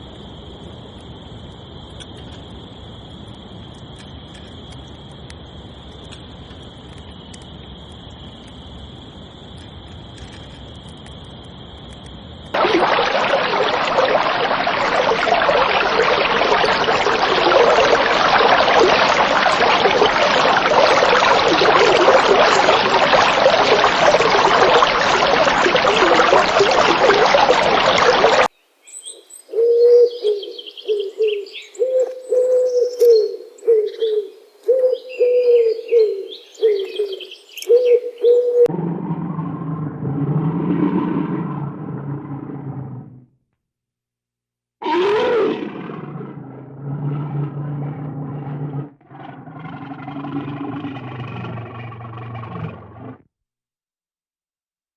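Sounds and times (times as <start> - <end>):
low repeated bird call: 24.0 - 38.7.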